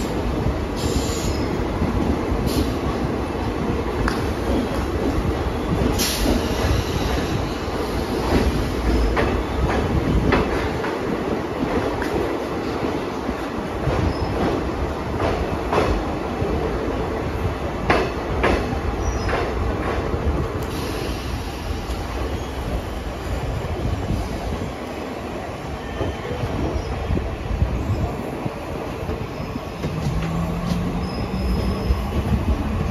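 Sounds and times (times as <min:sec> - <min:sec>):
train wheels rumbling on rail: 0:00.0 - 0:32.9.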